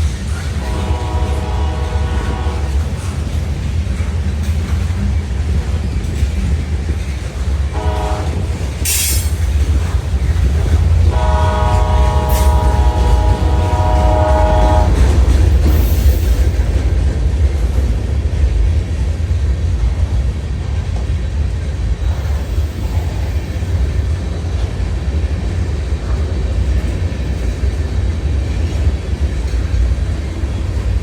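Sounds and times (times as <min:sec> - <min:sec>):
train rumble: 0:00.0 - 0:31.0
locomotive air horn blasts: 0:00.6 - 0:02.9, 0:07.7 - 0:09.4, 0:11.1 - 0:15.2.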